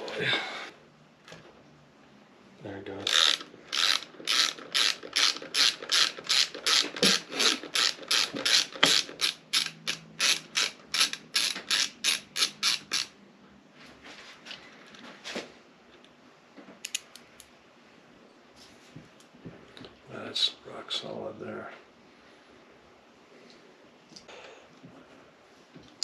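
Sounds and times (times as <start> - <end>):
ratchet wrench clicking: 3.0 - 13.1.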